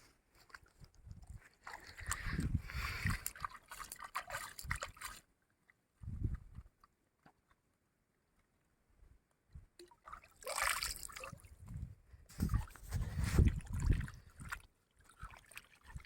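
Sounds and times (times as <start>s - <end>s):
water sloshing and splashing: 0.4s - 5.8s, 9.8s - 16.0s.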